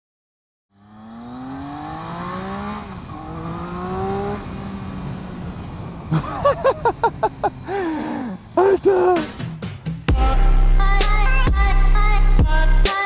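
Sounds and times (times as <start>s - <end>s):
motorcycle engine accelerating hard: 0.7s - 6.9s.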